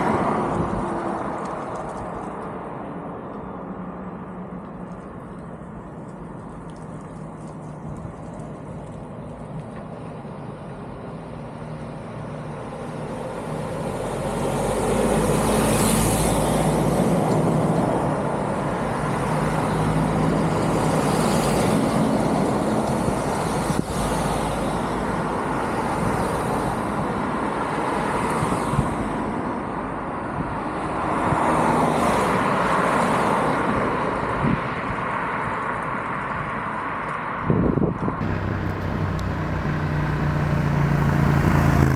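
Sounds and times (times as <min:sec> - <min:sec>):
vehicles passing: 0:00.0 - 0:37.4, 0:38.1 - 0:41.9
road traffic rushing: 0:12.4 - 0:29.7, 0:38.2 - 0:41.9.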